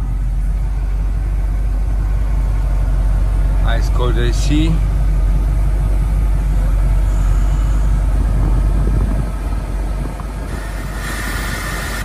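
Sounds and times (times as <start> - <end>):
car engine idling: 0.0 - 12.0
hiss: 10.5 - 12.0.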